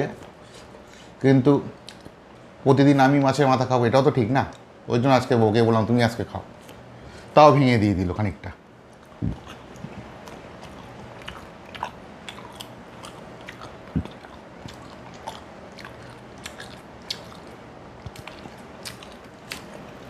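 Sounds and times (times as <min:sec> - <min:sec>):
close chewing: 0:08.9 - 0:20.0.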